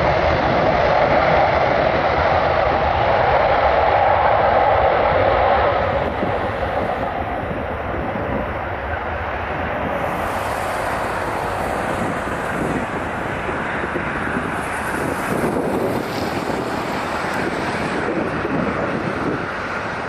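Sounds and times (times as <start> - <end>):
jet engines rumbling: 0.0 - 20.0
wind buffeting microphone: 0.0 - 20.0.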